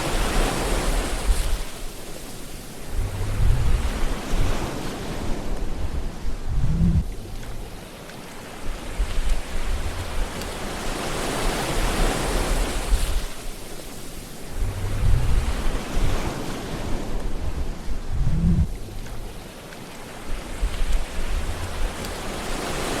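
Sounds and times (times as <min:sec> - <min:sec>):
sea waves washing on shore: 0:00.0 - 0:23.0
surf hiss: 0:00.0 - 0:23.0
low rumbles: 0:02.8 - 0:07.9, 0:08.6 - 0:10.8, 0:14.4 - 0:16.3, 0:16.9 - 0:19.5, 0:20.3 - 0:22.6.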